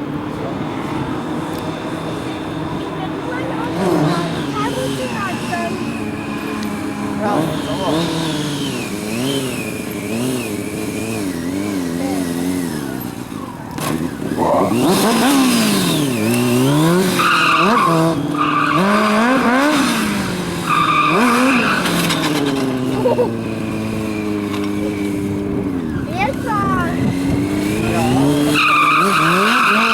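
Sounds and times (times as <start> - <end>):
motorcycle engine revving: 0.0 - 29.9
tyre squeal: 13.4 - 23.5, 27.9 - 29.9.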